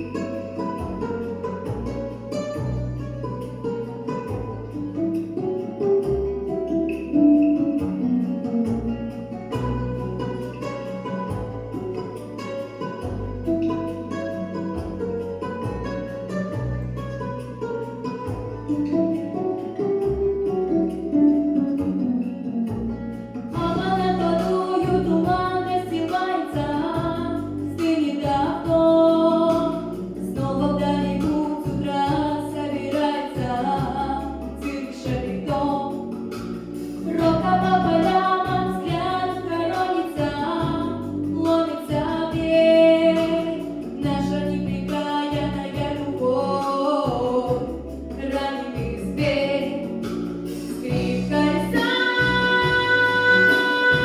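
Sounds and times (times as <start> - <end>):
woman singing pop song: 0.0 - 2.9, 23.5 - 54.0
instrumental backing track: 0.0 - 54.0.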